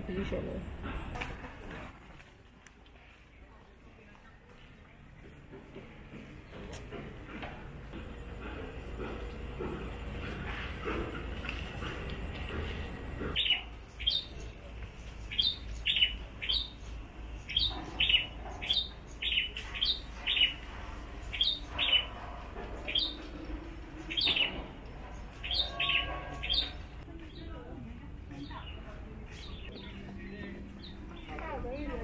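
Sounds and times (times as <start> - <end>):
bird chirping: 10.8 - 20.6, 21.2 - 22.2, 24.0 - 27.5.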